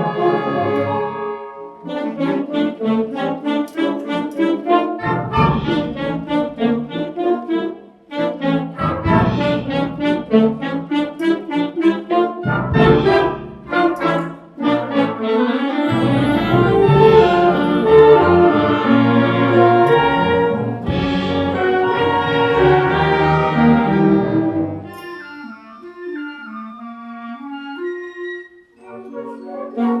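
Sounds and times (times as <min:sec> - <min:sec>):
school band playing brass chords: 0:15.8 - 0:20.0.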